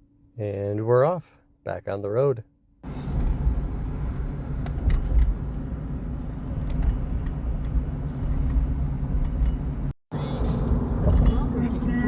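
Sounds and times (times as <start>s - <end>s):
truck road and engine rumble: 2.8s - 12.0s.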